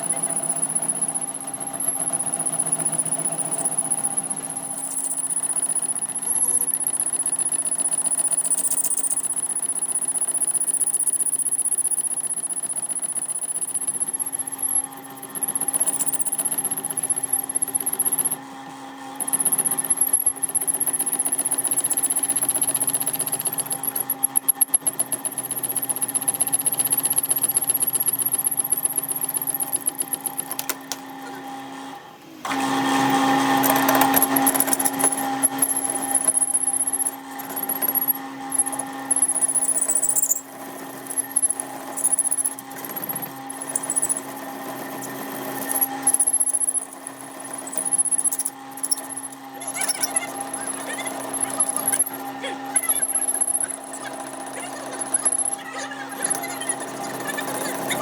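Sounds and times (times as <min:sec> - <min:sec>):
workshop machine motor hum: 0:28.5 - 0:39.7, 0:40.4 - 0:58.0.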